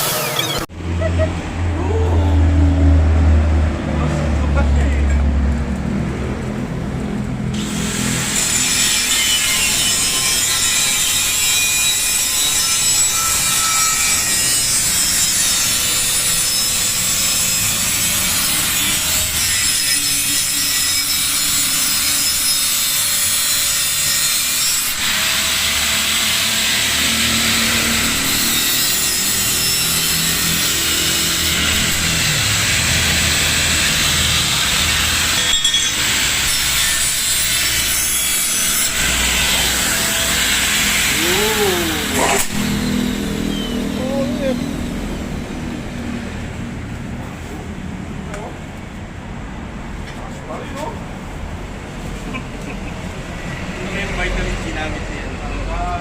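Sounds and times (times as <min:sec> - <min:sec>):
tool cutting metal: 0:00.0 - 0:00.7, 0:07.5 - 0:44.9.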